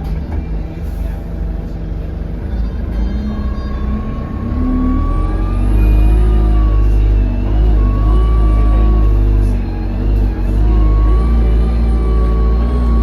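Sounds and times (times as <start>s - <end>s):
bus diesel engine: 0.0s - 13.0s
high whistle: 3.0s - 13.0s.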